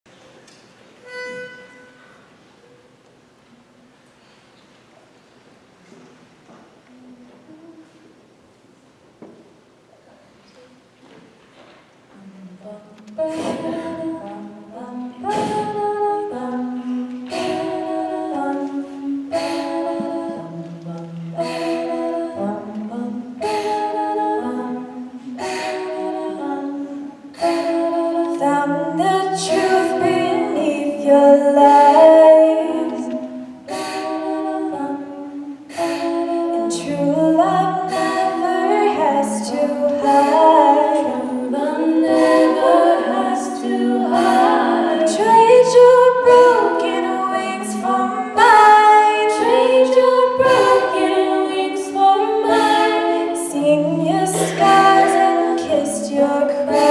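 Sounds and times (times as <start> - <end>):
vocal percussion beat: 12.1 - 30.8, 53.9 - 56.9
group singing wordless chords: 12.1 - 56.9.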